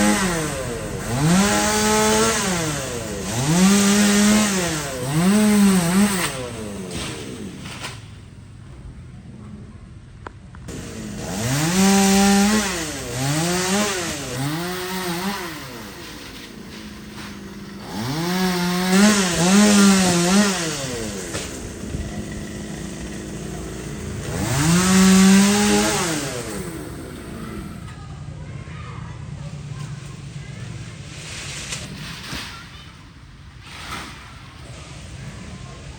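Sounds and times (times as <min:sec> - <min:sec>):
chainsaw revving: 0:00.0 - 0:08.0, 0:10.7 - 0:28.0.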